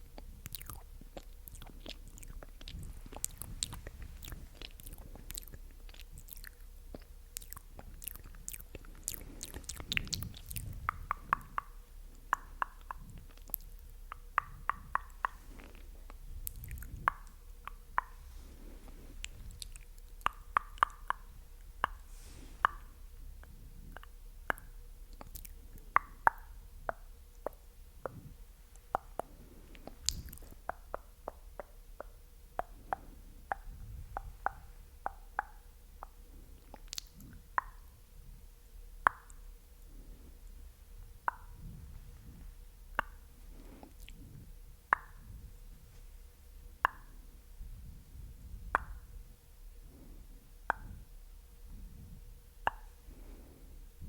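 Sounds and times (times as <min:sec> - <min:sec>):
lip and tongue clicks: 0:00.0 - 0:18.2, 0:19.2 - 0:37.9, 0:39.0 - 0:39.4, 0:41.2 - 0:45.4, 0:46.8 - 0:47.1, 0:48.6 - 0:49.0, 0:50.6 - 0:51.0, 0:52.6 - 0:53.0.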